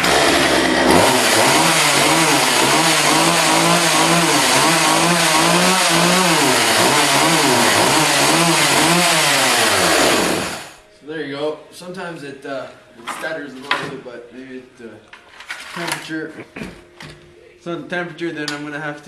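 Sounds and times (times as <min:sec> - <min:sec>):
chainsaw engine running: 0:00.0 - 0:10.8.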